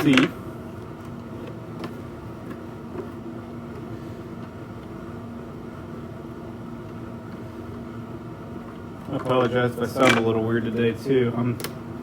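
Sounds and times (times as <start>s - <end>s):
heater droning hum: 0.0s - 12.0s.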